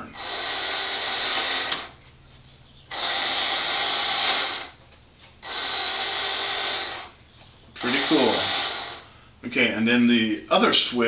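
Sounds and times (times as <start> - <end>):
toy electric motor whirring: 0.1 - 2.0, 2.9 - 4.8, 5.4 - 7.1, 7.8 - 9.1.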